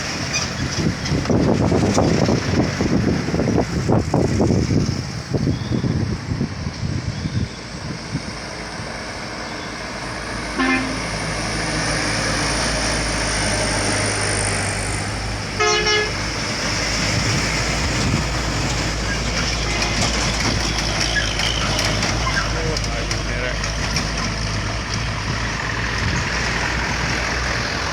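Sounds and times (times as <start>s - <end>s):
heavy truck engines running hard: 0.0s - 27.9s
truck horn toots: 10.6s - 11.5s, 15.6s - 16.2s.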